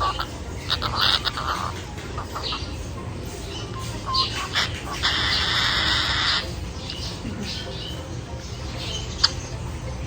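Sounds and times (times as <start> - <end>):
cockatiel chirps: 3.8 - 6.5
cockatiel harsh screech: 5.0 - 6.5.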